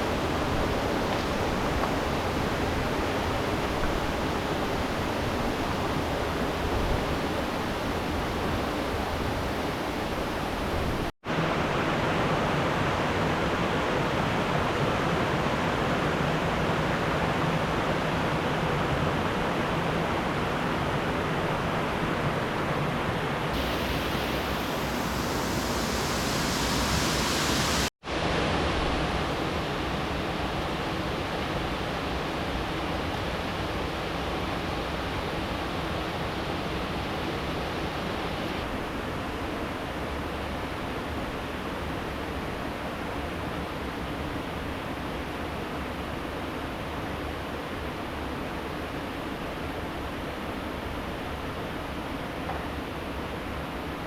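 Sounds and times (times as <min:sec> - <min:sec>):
river water flowing: 0:00.0 - 0:28.5.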